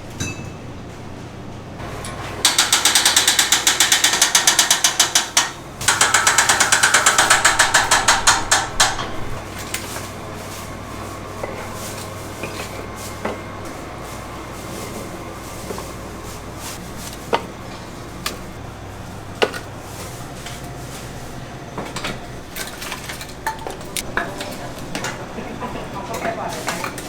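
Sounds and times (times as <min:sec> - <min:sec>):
mechanical ratcheting clatter: 0:02.5 - 0:09.4.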